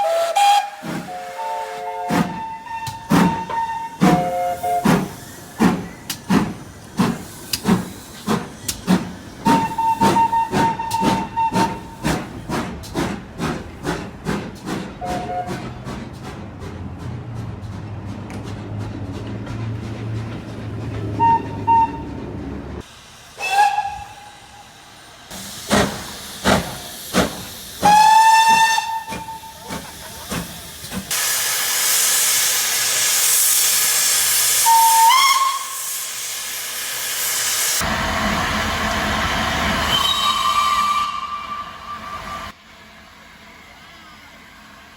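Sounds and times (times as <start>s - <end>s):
steam locomotive whistle: 0.0s - 5.3s, 9.4s - 12.0s, 15.0s - 15.7s, 21.2s - 22.2s, 23.4s - 24.9s, 27.8s - 29.7s, 32.0s - 36.3s, 39.6s - 42.6s
loud steam hiss: 0.0s - 15.3s, 22.8s - 44.9s.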